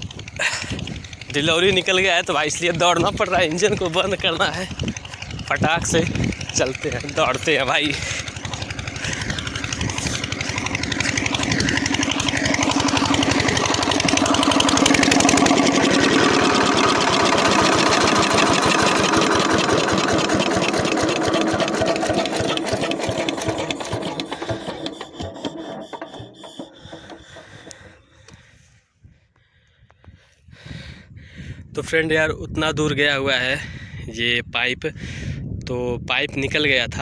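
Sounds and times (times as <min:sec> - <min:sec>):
diesel pump engine running: 0:00.0 - 0:28.8.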